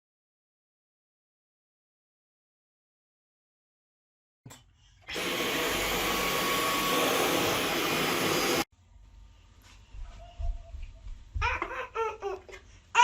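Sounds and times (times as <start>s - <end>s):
vacuum cleaner running: 5.1s - 8.7s.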